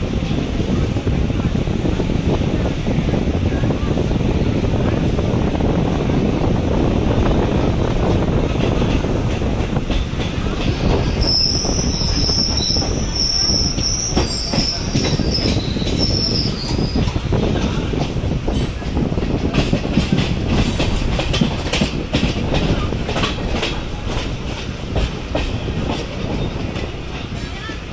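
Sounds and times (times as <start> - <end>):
electric train rumbling on track: 0.0 - 27.9
high wheel squeal: 11.1 - 17.0.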